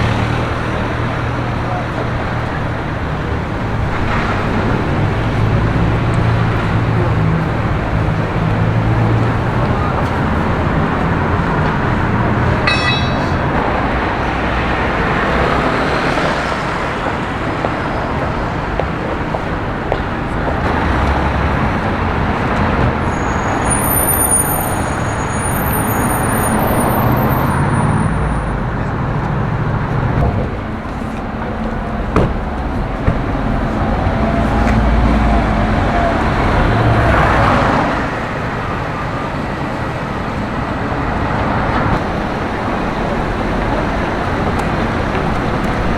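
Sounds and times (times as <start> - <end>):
road traffic passing: 0.0 - 45.9.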